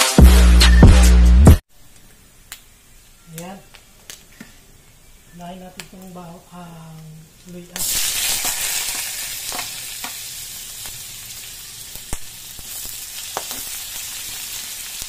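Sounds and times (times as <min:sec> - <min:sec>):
ginger sizzling in hot fat: 0:05.1 - 0:15.0.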